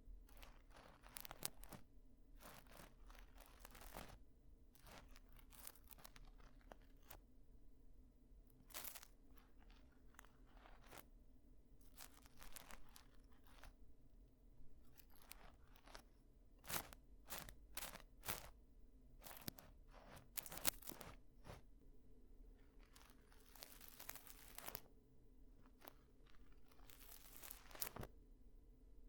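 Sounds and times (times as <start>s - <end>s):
tool scraping microphone: 19.2s - 21.6s.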